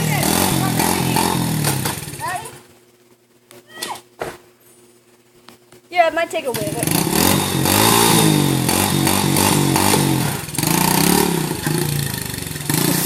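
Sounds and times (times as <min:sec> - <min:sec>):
dirt bike engine revving: 0:00.0 - 0:02.6, 0:06.5 - 0:13.0.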